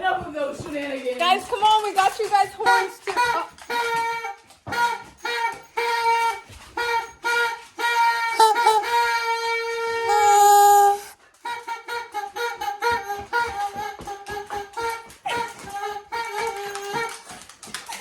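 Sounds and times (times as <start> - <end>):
party horns tooting: 3.0 - 17.3.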